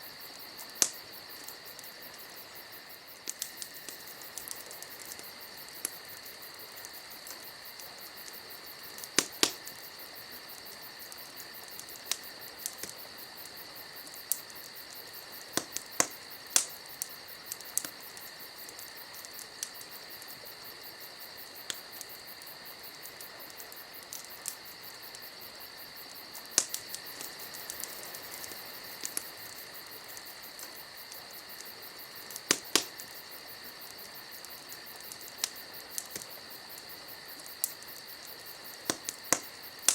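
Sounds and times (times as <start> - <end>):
crickets chirring: 0.0 - 39.9
sharp crackles and pops: 0.0 - 39.9.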